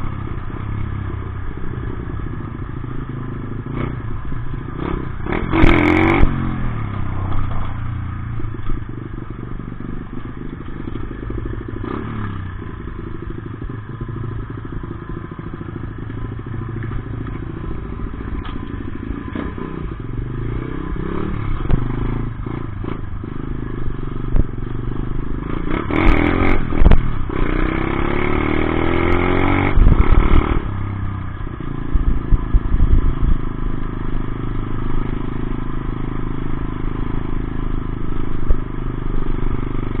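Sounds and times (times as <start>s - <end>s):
dirt bike engine revving: 3.6s - 7.7s, 11.3s - 14.8s, 25.2s - 30.8s.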